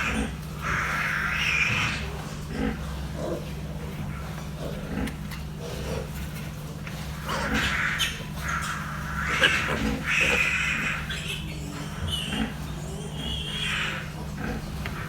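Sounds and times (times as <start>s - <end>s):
piglets squealing: 0.0s - 2.8s, 7.1s - 15.0s
steady low hum: 0.0s - 15.0s.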